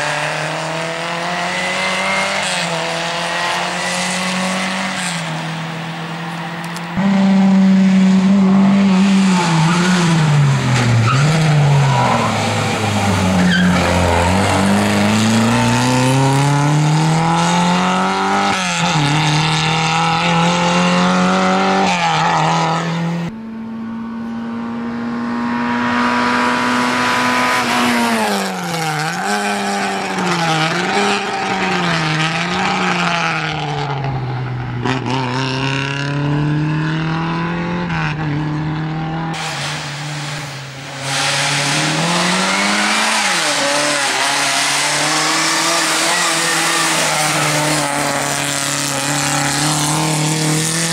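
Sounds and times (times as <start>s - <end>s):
tyres skidding: 0.0s - 23.3s, 39.3s - 50.9s
rally car engine revving: 0.0s - 50.9s.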